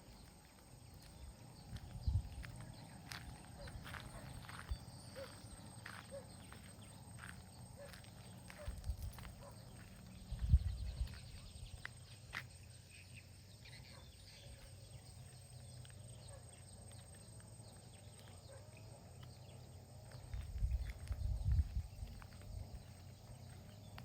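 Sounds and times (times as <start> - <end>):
wind buffeting microphone: 1.2 - 3.2, 10.2 - 11.9, 20.2 - 23.0
faint bird chirps: 9.4 - 17.1.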